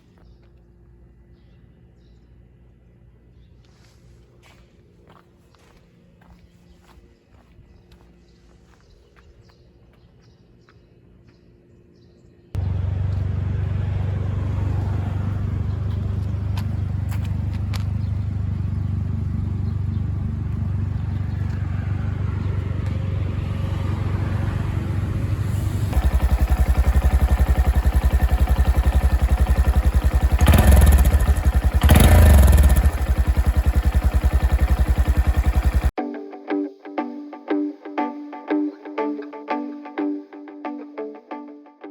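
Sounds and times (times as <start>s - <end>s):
engine revving: 12.6s - 35.9s
motorcycle engine running: 12.6s - 35.9s.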